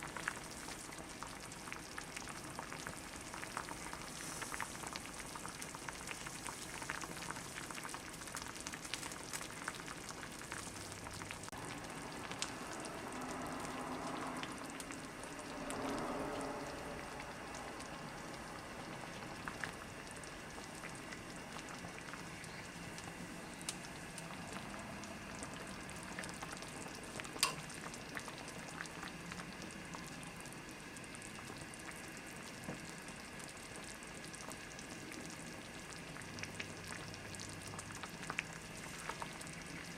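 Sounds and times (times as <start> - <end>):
stew sizzling and bubbling in pot: 0.0 - 39.9.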